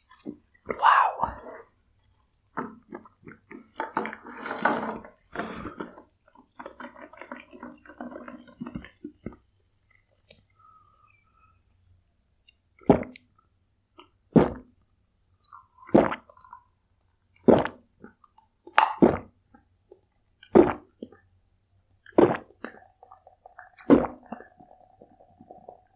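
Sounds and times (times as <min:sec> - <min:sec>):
person gulping swallows: 0:00.0 - 0:01.8, 0:14.0 - 0:14.8, 0:15.4 - 0:16.7, 0:17.4 - 0:19.6, 0:20.4 - 0:21.2, 0:22.0 - 0:25.9.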